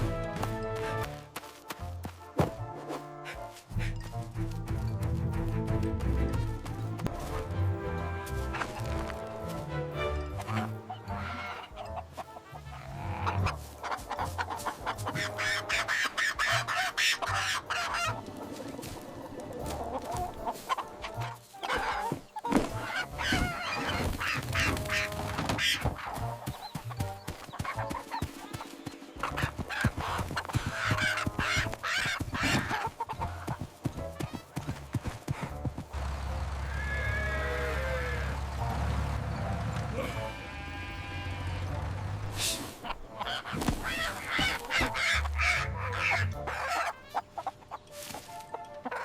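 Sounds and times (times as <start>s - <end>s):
horse hooves clip-clopping: 0.0s - 9.7s, 17.5s - 40.3s
chickens clucking: 10.2s - 35.7s, 37.5s - 49.0s
animal calls: 10.4s - 34.8s, 36.6s - 38.7s, 39.5s - 47.9s.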